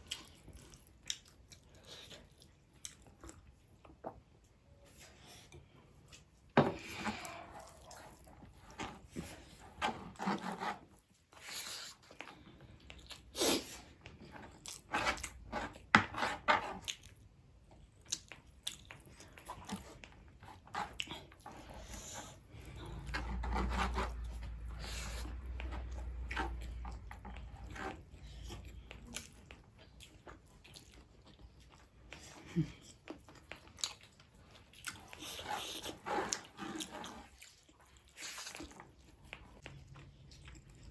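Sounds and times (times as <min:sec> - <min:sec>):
close-up chewing and biting: 0:00.0 - 0:04.3, 0:16.6 - 0:40.9.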